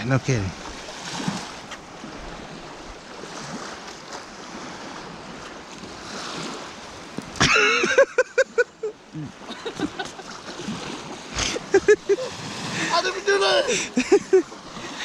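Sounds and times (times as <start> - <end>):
choppy water: 0.0 - 15.0
wind: 0.0 - 15.0
man laughing: 7.4 - 10.4, 11.4 - 15.0
man calling out: 12.8 - 14.0.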